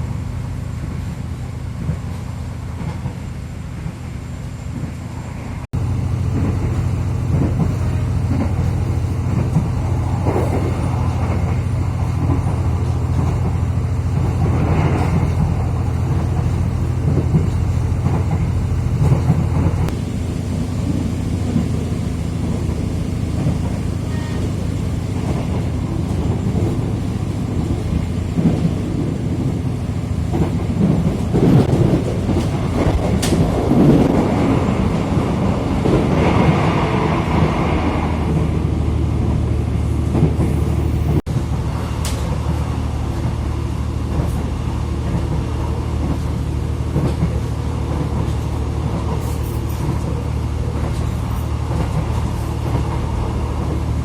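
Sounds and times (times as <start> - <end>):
train clattering and rushing: 0.0 - 54.0
train running low rumble: 0.0 - 54.0.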